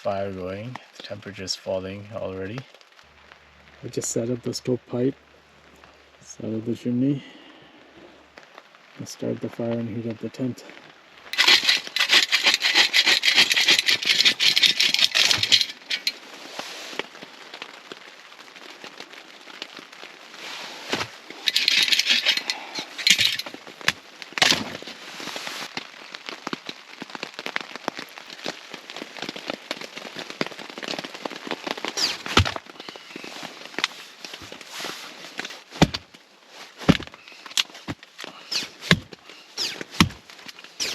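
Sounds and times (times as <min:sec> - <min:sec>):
fire crackling and snapping: 0:01.9 - 0:06.4, 0:07.4 - 0:40.9
rustling noise: 0:11.3 - 0:17.3, 0:20.0 - 0:25.8, 0:30.3 - 0:40.9.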